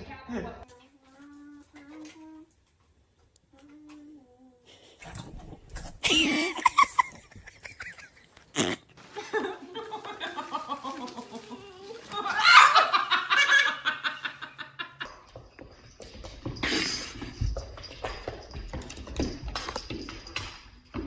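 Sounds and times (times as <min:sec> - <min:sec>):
person laughing hard: 0:06.0 - 0:11.6, 0:12.2 - 0:14.8.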